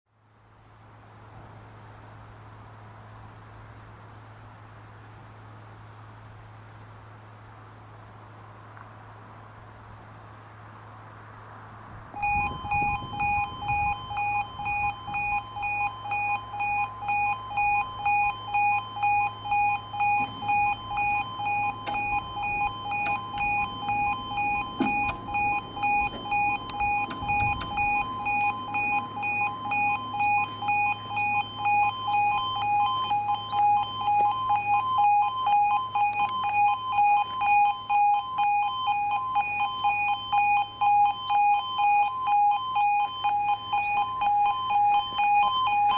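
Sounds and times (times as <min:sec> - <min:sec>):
level crossing alarm two-tone: 0:12.2 - 0:45.9.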